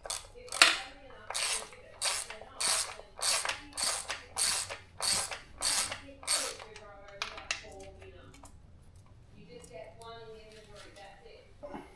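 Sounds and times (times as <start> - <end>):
ratchet wrench clicking: 0.0 - 8.5.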